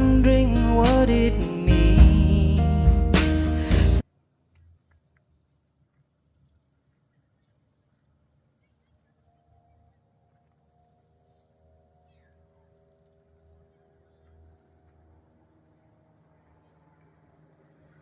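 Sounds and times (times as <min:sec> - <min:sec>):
music: 0:00.0 - 0:04.0.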